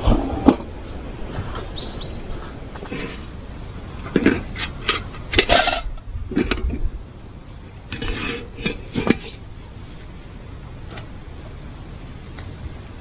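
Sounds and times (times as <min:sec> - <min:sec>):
camping gear knocking and clinking: 0:04.0 - 0:06.9.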